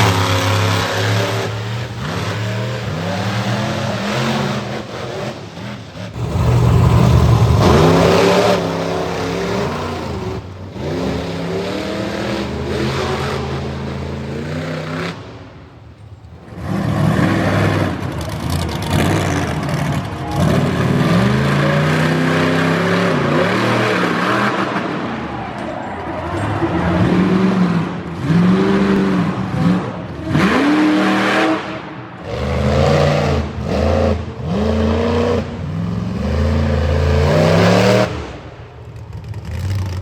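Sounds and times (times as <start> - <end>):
truck engine revving hard: 0.0 - 40.0.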